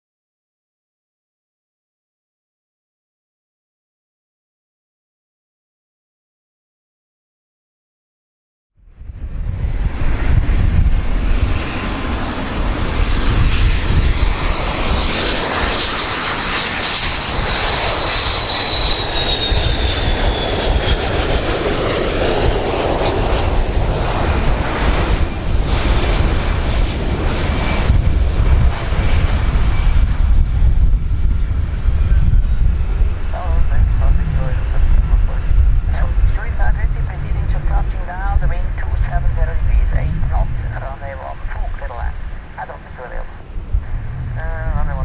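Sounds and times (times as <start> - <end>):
airplane engines rumbling: 8.8 - 45.0
high whine: 27.2 - 45.0.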